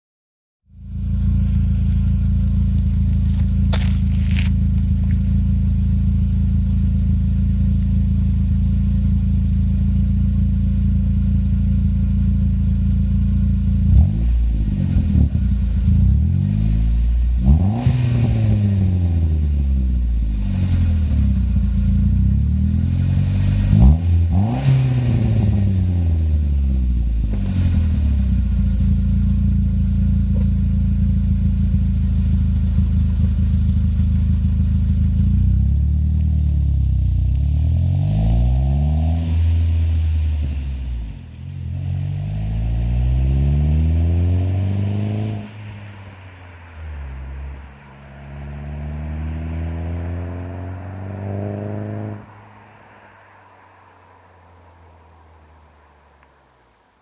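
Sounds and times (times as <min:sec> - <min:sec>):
car engine accelerating: 0:00.7 - 0:57.0.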